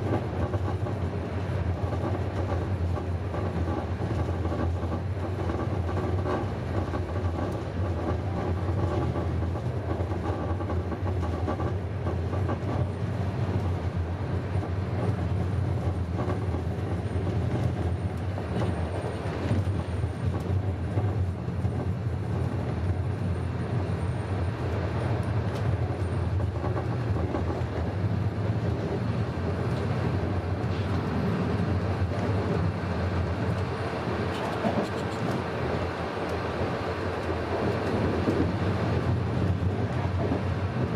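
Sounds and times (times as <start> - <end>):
train carriage rumbling: 0.0 - 40.9.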